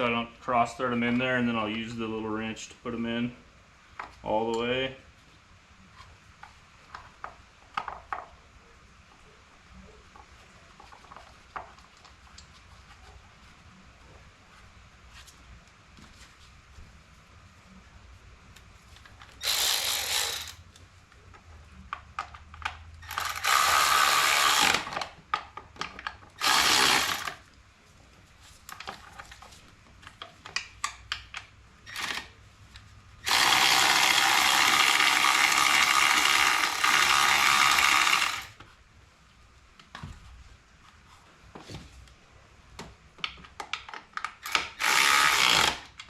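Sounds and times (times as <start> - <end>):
ratchet clicks: 19.4 - 20.6, 23.0 - 25.0
ratchet tool whirring: 19.4 - 20.6, 23.0 - 25.1, 26.4 - 27.4, 31.9 - 32.3, 33.2 - 38.6, 44.4 - 46.0.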